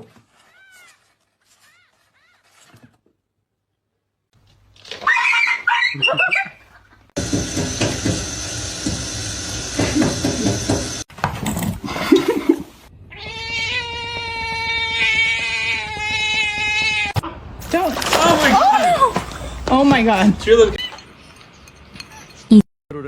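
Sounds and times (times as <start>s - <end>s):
cats meowing: 13.1s - 17.1s, 18.0s - 19.8s.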